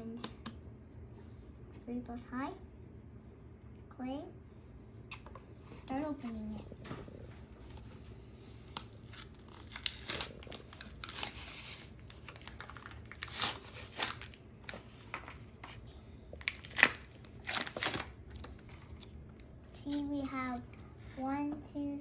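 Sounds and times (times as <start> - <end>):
plastic wrapping crinkling: 8.6 - 15.8, 16.4 - 19.2.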